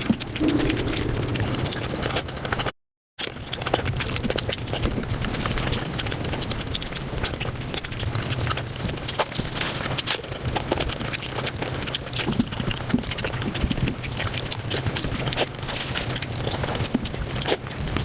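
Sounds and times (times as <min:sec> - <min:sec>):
steady low hum: 0:00.0 - 0:02.3.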